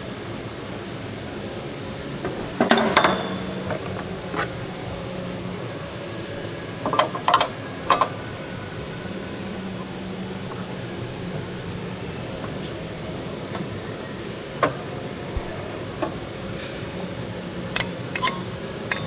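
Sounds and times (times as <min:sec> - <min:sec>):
steady background hum: 0:00.0 - 0:19.0
metal tools clinking: 0:17.8 - 0:19.0.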